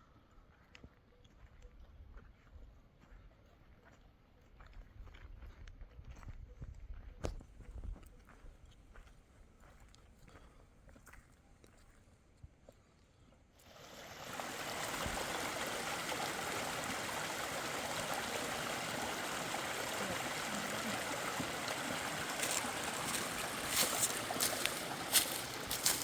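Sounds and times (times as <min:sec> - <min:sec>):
river water rushing: 0:13.7 - 0:26.0.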